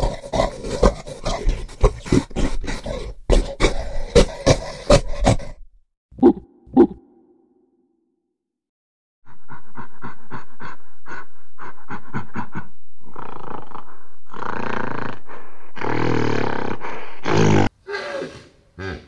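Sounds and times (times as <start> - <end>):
gorilla roaring: 0.0 - 5.6, 15.8 - 19.0
gorilla hooting: 17.4 - 19.0.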